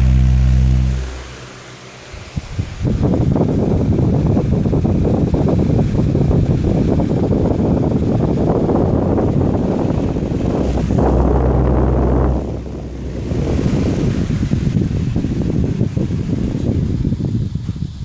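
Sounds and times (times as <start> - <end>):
fan wind buffeting microphone: 0.0 - 18.0.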